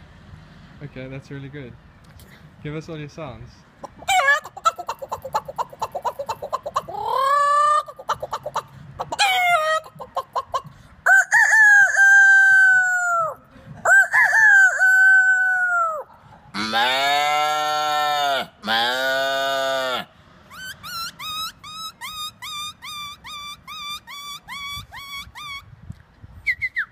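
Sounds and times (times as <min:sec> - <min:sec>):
man imitating chicken clucking: 0:03.8 - 0:25.6
man imitating rooster crows: 0:11.1 - 0:20.1.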